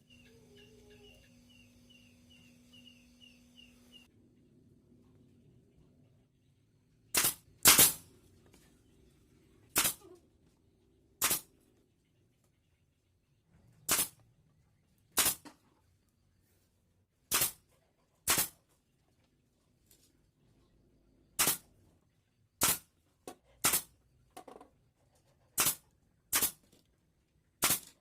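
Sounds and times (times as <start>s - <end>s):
sharp cracks on wood: 7.1s - 8.1s, 9.8s - 10.0s, 11.2s - 11.5s, 13.9s - 14.2s, 15.1s - 15.7s, 17.3s - 18.7s, 21.4s - 21.7s, 22.6s - 24.7s, 25.5s - 26.9s, 27.6s - 28.0s.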